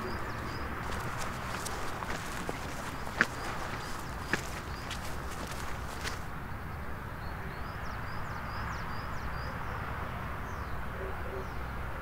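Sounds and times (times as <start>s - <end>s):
small bird chirping: 0.0s - 6.3s.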